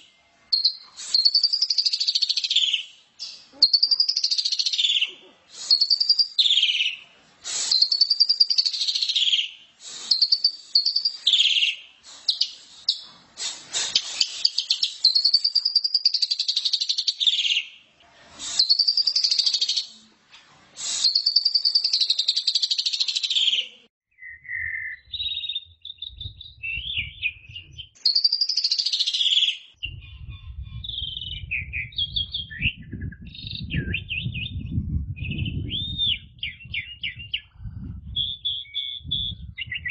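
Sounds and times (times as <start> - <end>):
starling singing: 0.6 - 7.0, 7.6 - 13.1
low rumble: 29.8 - 38.4.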